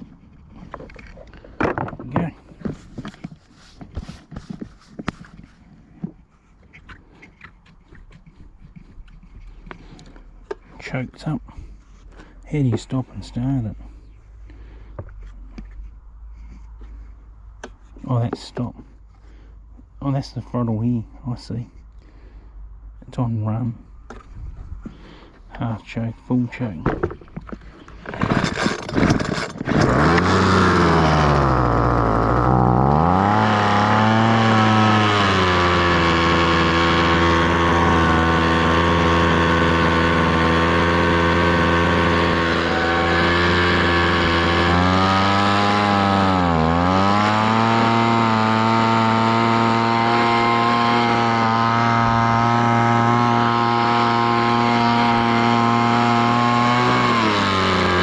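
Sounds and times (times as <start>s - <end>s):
leaf blower engine running: 27.0s - 58.0s.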